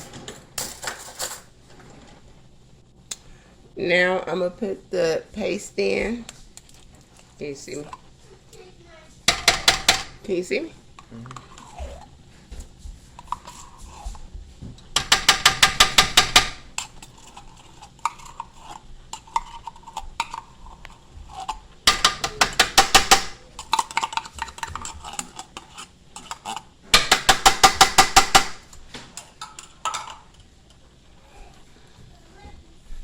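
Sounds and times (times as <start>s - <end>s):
metal spoon clattering against pot: 29.2s - 30.3s.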